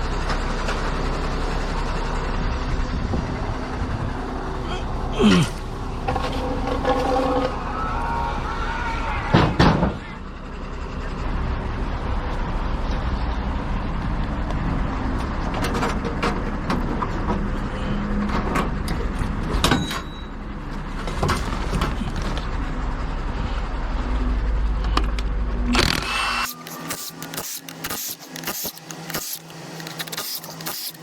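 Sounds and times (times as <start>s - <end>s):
heavy truck engine running: 0.0s - 31.0s
clanks and knocks: 15.4s - 17.5s.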